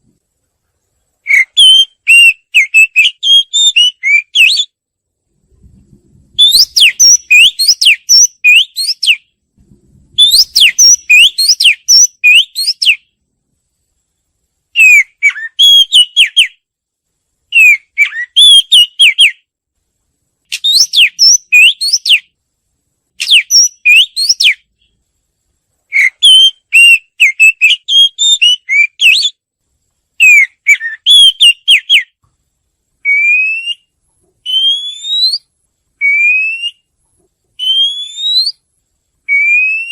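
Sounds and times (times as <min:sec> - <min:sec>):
songbird whistling phrases: 0:01.2 - 0:04.8, 0:06.4 - 0:09.3, 0:10.2 - 0:13.1, 0:14.8 - 0:16.6, 0:17.5 - 0:19.4, 0:20.5 - 0:22.3, 0:23.2 - 0:24.9, 0:25.9 - 0:29.4, 0:30.2 - 0:32.2, 0:33.0 - 0:36.9, 0:37.6 - 0:38.6, 0:39.3 - 0:39.9.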